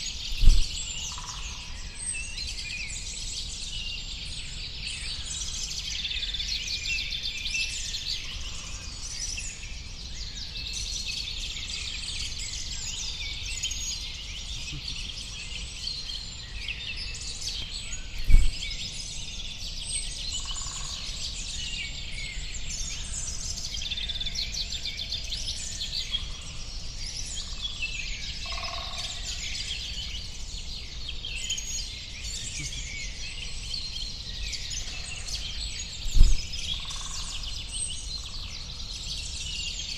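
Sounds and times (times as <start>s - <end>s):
songbirds chirping and twittering: 0.0s - 39.9s
thump: 0.4s - 0.8s, 18.2s - 18.6s, 36.1s - 36.5s.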